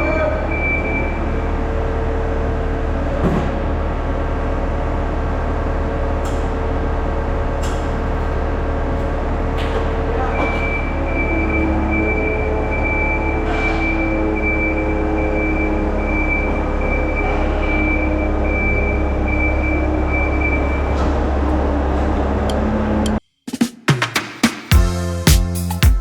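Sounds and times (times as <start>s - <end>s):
skid steer engine running: 0.0s - 23.1s.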